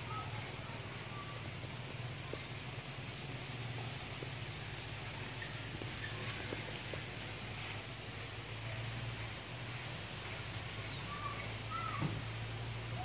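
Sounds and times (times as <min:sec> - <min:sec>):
birds chirping and whistling: 0:02.0 - 0:06.7, 0:10.3 - 0:12.1.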